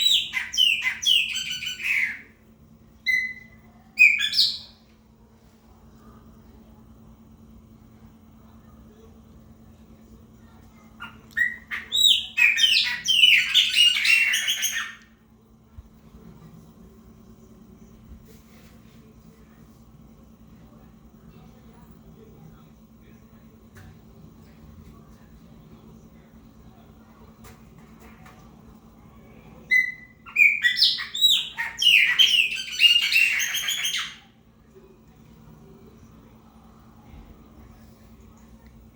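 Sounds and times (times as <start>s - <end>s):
blackbird singing: 0.0s - 2.3s, 3.0s - 4.8s, 11.0s - 15.0s, 29.7s - 34.2s.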